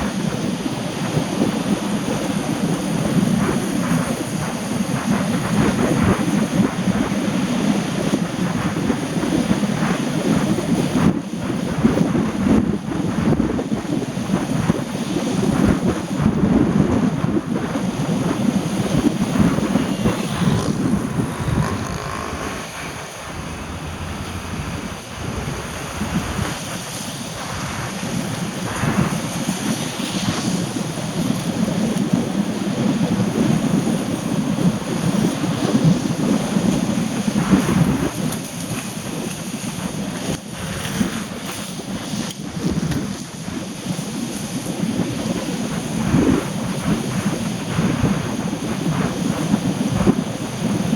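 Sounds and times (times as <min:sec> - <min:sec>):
wind: 0:00.0 - 0:50.9
rain: 0:23.2 - 0:44.2.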